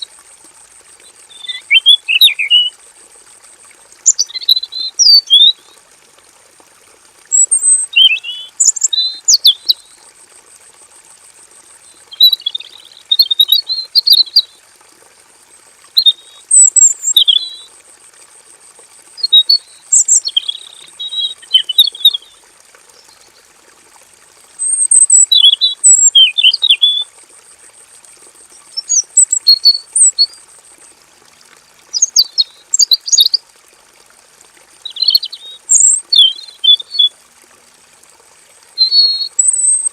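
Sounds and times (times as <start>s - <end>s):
bird singing warbled phrases: 1.0s - 2.7s, 4.1s - 5.6s, 7.3s - 9.8s, 12.0s - 14.5s, 16.0s - 17.7s, 19.2s - 22.4s, 24.8s - 27.0s, 28.7s - 30.4s, 31.9s - 33.4s, 34.8s - 37.1s, 38.8s - 39.9s.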